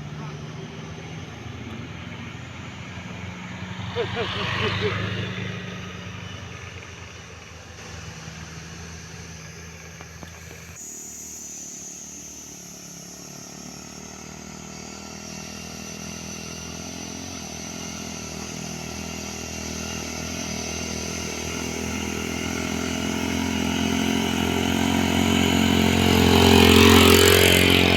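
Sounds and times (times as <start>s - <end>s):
vehicle engine running: 0.0s - 27.9s.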